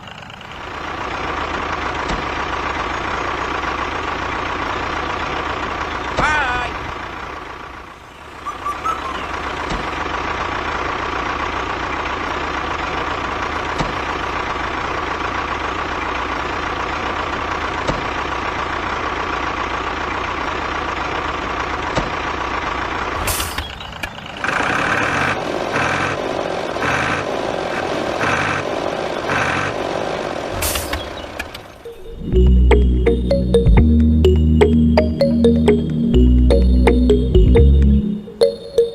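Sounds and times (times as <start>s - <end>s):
small tractor engine running: 0.0s - 23.2s.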